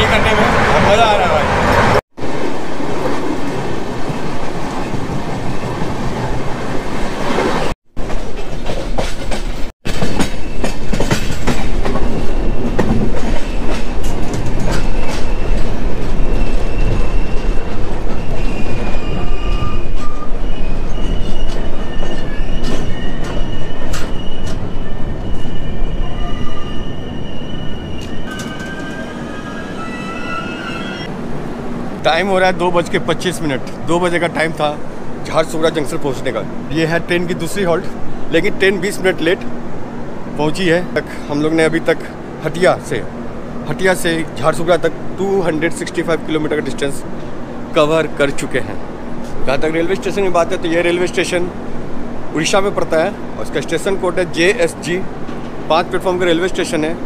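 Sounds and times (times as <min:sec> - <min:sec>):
train rumbling on rails: 0:00.0 - 0:57.0
metal-on-metal squeals: 0:11.9 - 0:31.1.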